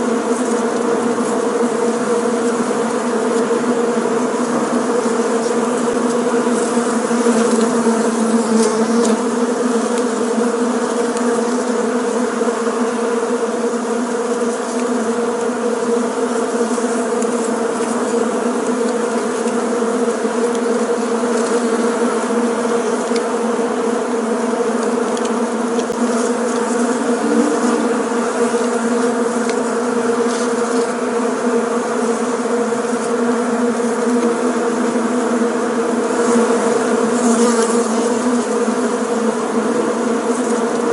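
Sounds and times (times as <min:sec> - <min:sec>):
bees buzzing: 0:00.0 - 0:40.9.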